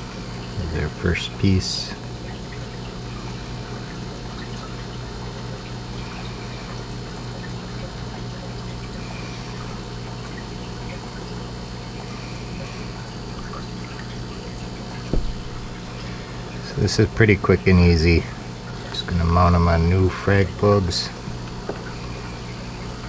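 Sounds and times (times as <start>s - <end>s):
low pump hum: 0.0s - 23.0s
water trickling and pouring: 0.2s - 17.0s, 20.1s - 23.0s.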